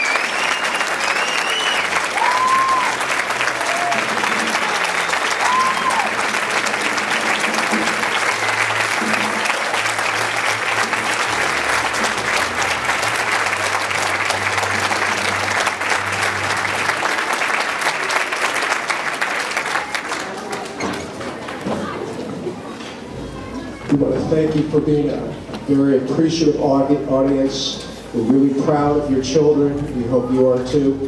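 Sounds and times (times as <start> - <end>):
audience applauding: 0.0 - 23.8
person whooping: 1.1 - 3.0, 3.6 - 4.1, 5.3 - 6.2.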